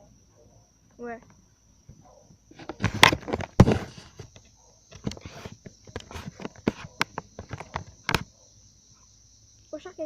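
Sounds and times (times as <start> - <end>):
crickets chirping: 0.0 - 10.0
sharp knocks and rustles: 1.3 - 8.4.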